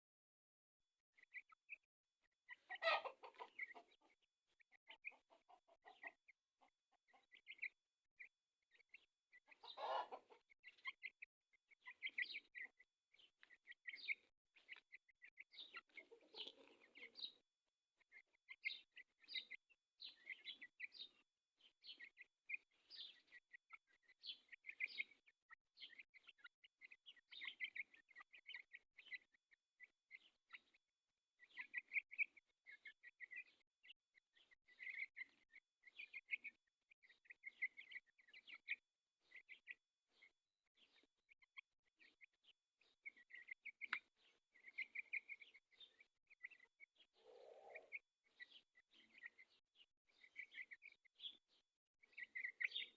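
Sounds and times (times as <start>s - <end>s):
chickens clucking: 2.5s - 17.4s, 18.0s - 21.2s, 21.8s - 25.2s, 25.8s - 30.8s, 31.4s - 33.6s, 34.7s - 39.7s, 43.0s - 49.4s, 52.2s - 52.9s.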